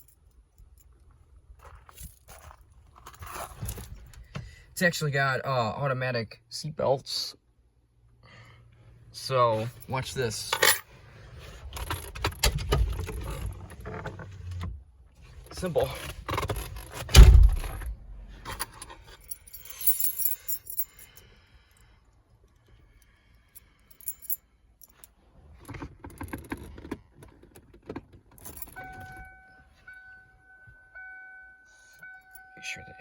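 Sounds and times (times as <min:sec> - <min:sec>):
car keys jangling: 0:15.6 - 0:21.2, 0:23.7 - 0:25.0, 0:25.6 - 0:30.2
heavy thump: 0:17.1 - 0:18.3.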